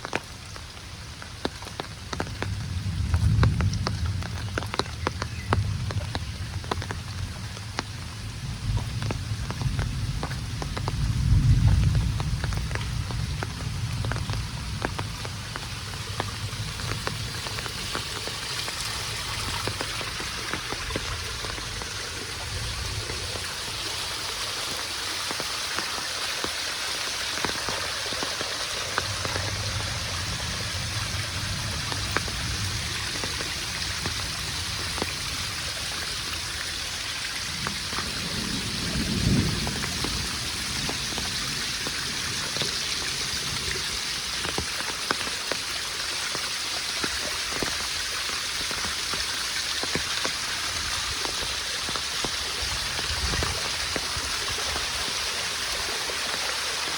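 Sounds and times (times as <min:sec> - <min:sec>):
raindrops ticking: 0:00.0 - 0:56.9
steady rain falling: 0:00.0 - 0:56.9
low rumble: 0:28.8 - 0:35.5.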